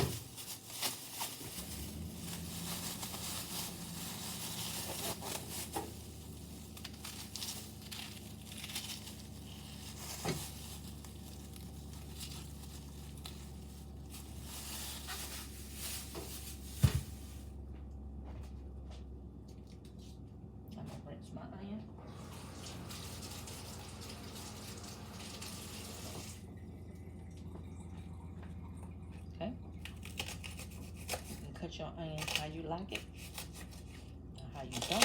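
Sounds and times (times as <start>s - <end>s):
onion skin tearing and crinkling: 0.0s - 17.5s, 29.8s - 31.5s, 32.2s - 35.0s.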